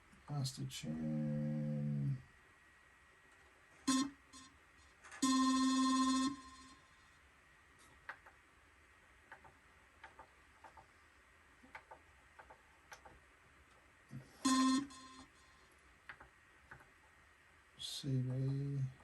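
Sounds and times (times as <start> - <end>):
bright synth note: 3.9 - 4.5, 5.2 - 6.9, 14.3 - 15.5.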